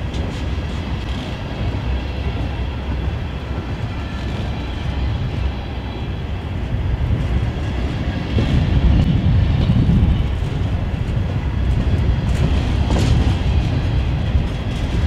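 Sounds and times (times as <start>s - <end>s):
steel wheels rumbling on rail: 0.0s - 15.0s.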